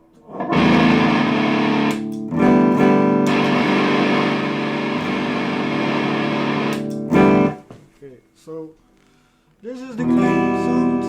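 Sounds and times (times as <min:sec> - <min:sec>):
distorted electric guitar chords: 0:00.0 - 0:07.7, 0:10.0 - 0:11.0.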